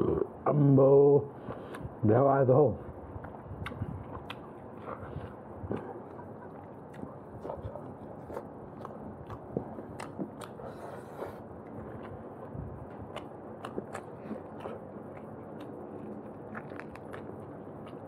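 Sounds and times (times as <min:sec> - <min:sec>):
man chewing food: 0:01.3 - 0:02.0, 0:02.8 - 0:18.0
wet mouth clicks and smacks: 0:03.2 - 0:04.6, 0:13.1 - 0:18.0.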